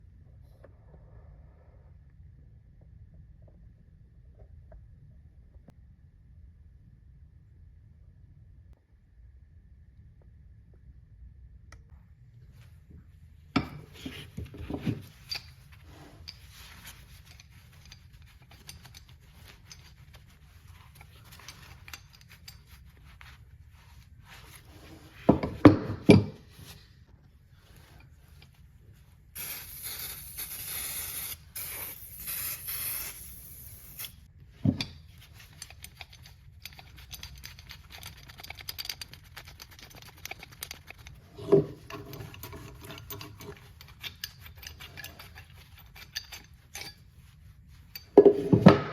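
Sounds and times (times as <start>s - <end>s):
hissing spray: 29.4s - 34.2s
metal tool parts clicking: 35.5s - 41.2s.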